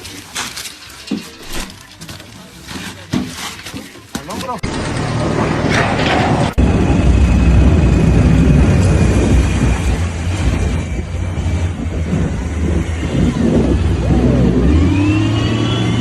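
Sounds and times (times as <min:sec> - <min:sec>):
motor rumbling: 0:04.6 - 0:16.0.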